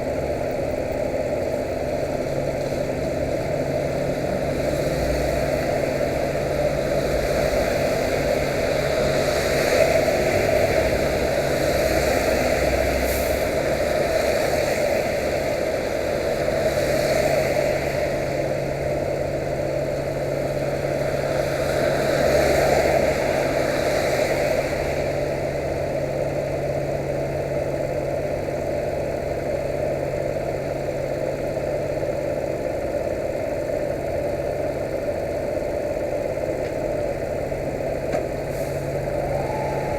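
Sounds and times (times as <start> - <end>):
rushing noise: 38.4 - 39.9.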